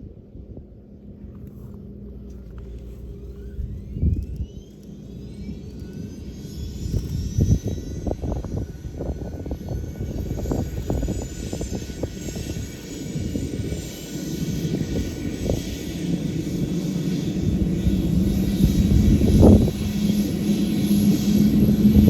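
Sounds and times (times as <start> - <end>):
low engine rumble: 0.0 - 13.7
helicopter turbine whine rising: 0.0 - 22.0.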